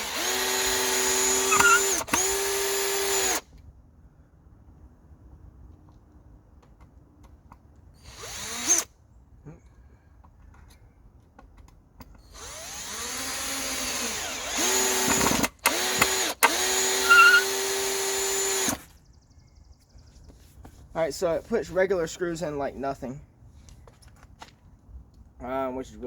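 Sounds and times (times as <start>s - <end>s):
cordless drill driving screws: 0.0s - 3.5s, 8.0s - 8.9s, 12.2s - 18.9s.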